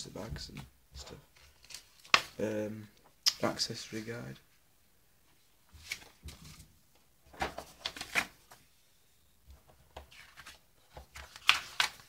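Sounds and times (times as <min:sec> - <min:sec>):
paper rustling and shuffling: 0:00.4 - 0:02.4, 0:05.7 - 0:06.7, 0:07.3 - 0:08.7, 0:09.6 - 0:12.0.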